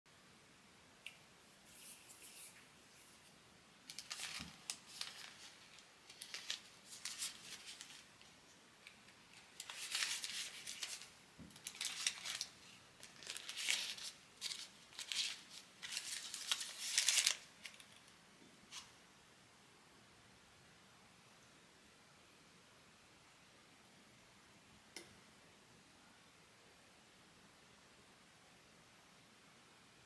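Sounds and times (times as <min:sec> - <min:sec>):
material rustling and crinkling: 0:03.9 - 0:18.9.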